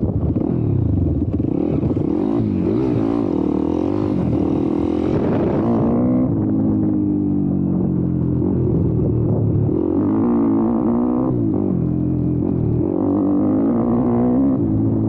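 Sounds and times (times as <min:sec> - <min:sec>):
motorbike engine revving: 0:00.0 - 0:07.2.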